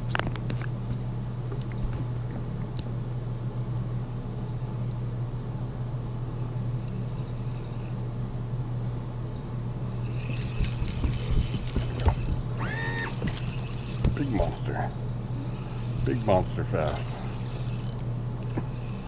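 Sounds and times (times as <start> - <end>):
boat motor humming: 10.0 - 19.0.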